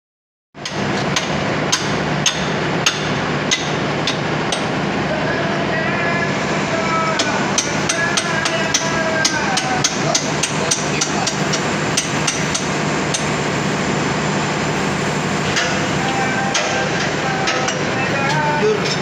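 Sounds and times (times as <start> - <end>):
machinery humming: 0.6 - 19.0.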